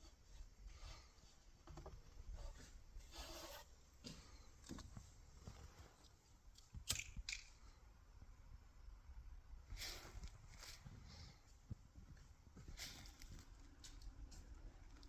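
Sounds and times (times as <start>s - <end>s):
soft handling rustles and clicks: 10.0s - 15.0s.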